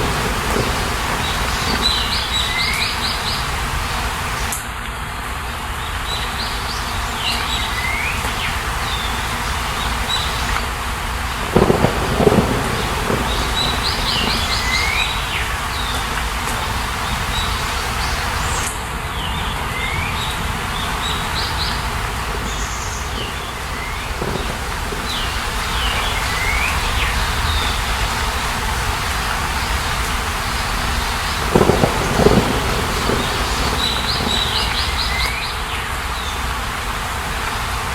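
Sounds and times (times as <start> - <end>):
birds singing: 0.0 - 4.5, 11.4 - 28.2, 29.5 - 36.5.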